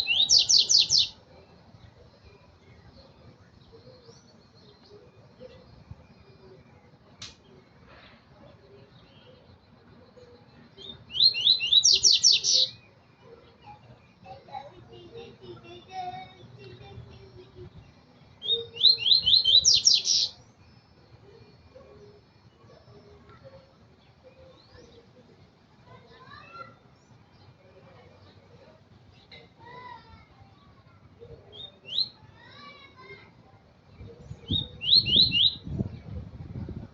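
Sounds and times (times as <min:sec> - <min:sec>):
bird singing short phrase: 0:00.0 - 0:01.2, 0:10.8 - 0:12.8, 0:34.4 - 0:35.7.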